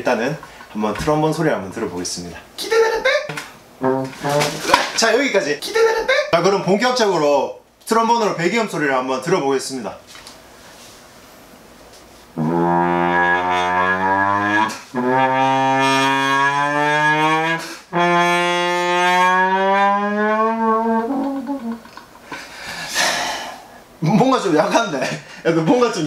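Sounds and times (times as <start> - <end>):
trombone sliding notes: 3.2 - 5.3, 12.3 - 22.0.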